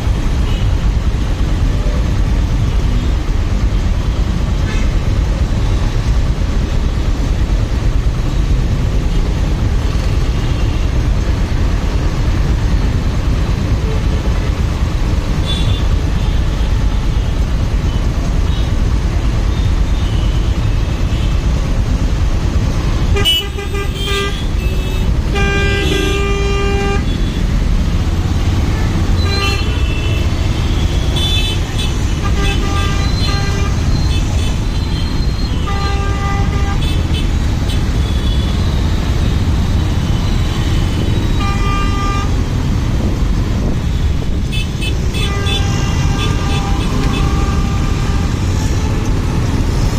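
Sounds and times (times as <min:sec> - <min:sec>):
wind and motorcycle road rumble: 0:00.0 - 0:49.9
vehicle horns honking: 0:15.4 - 0:16.6, 0:19.5 - 0:21.4, 0:23.1 - 0:27.6, 0:28.6 - 0:38.9, 0:39.9 - 0:42.5, 0:43.8 - 0:49.4.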